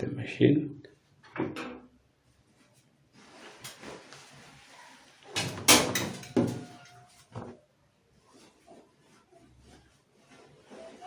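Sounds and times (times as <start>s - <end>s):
clothes rustling: 2.4s - 6.8s.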